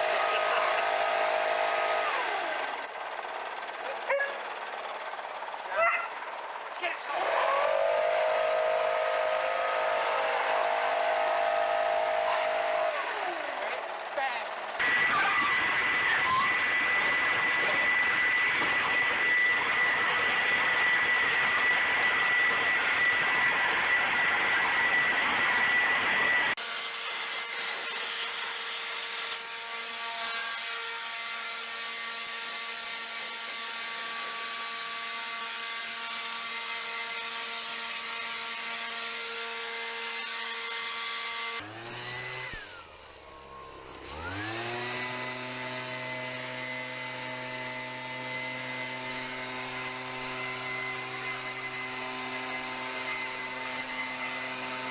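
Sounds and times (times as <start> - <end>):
leaf blower running: 0.0 - 54.9.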